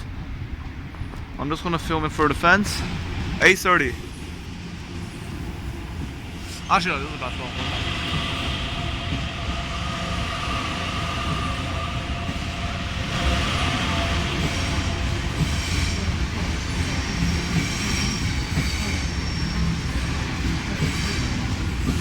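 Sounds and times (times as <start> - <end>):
train wheels rumbling on rail: 0.0 - 22.0
high-pitched wheel squeal: 8.4 - 22.0.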